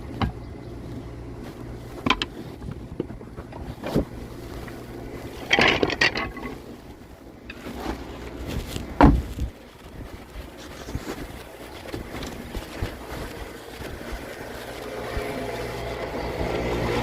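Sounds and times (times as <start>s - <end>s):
clattering: 2.0s - 9.5s
sawmill machinery humming: 11.4s - 17.0s.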